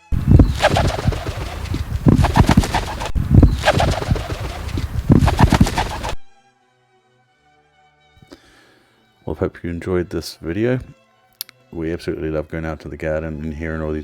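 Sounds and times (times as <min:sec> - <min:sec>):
pigeon wingbeats whooshing: 0:00.0 - 0:06.3.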